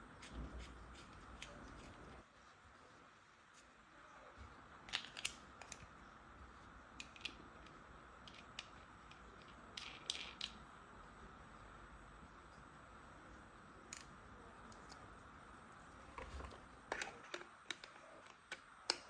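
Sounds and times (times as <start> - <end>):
plastic toy parts clicking: 7.0 - 10.6.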